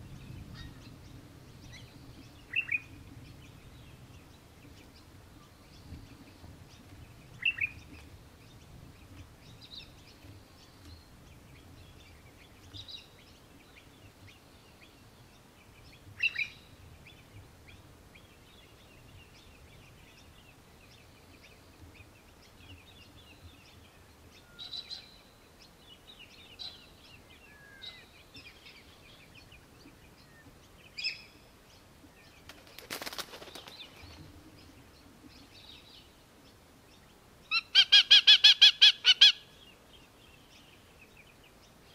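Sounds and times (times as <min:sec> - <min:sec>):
noisy rustle: 0:00.0 - 0:37.4
birds chirping: 0:00.0 - 0:41.9
harsh bird calls: 0:37.5 - 0:39.8.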